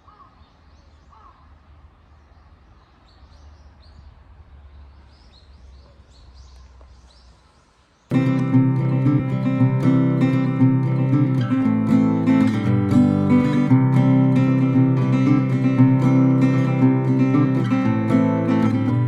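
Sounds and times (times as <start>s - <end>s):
birds chirping: 0.0s - 19.0s
acoustic guitar music: 8.1s - 19.0s.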